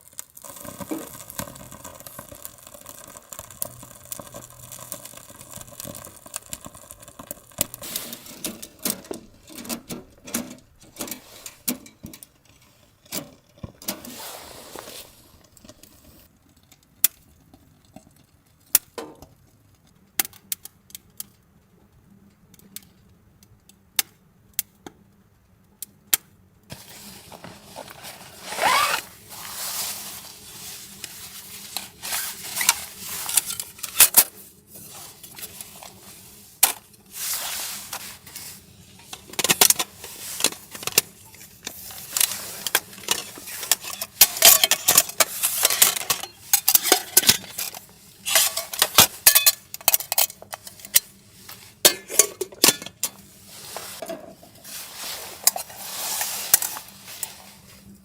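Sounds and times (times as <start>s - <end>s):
utensils scraping: 26.7s - 57.9s
metal cookware clattering: 42.6s - 50.9s, 51.9s - 53.2s.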